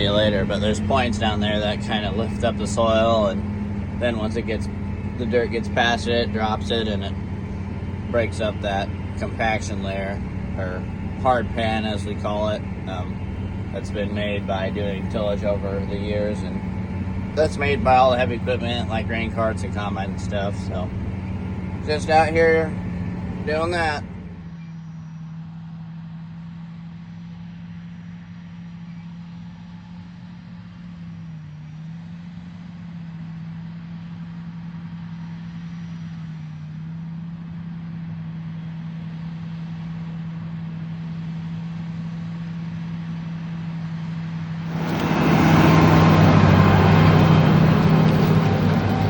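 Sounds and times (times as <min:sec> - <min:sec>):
tractor engine under load: 0:00.0 - 0:25.2, 0:44.0 - 0:49.0
loud rushing noise: 0:44.6 - 0:49.0.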